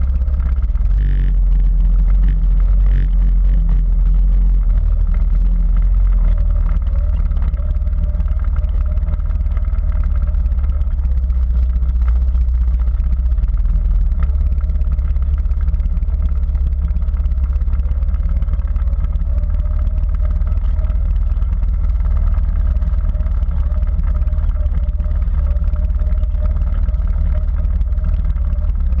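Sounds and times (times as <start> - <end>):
quad bike engine running: 0.0 - 29.0.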